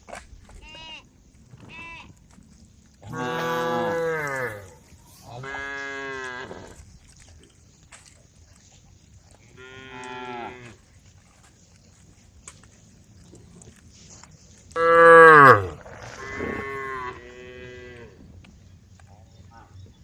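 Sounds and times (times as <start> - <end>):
cattle mooing: 3.1 - 4.8, 14.8 - 18.0.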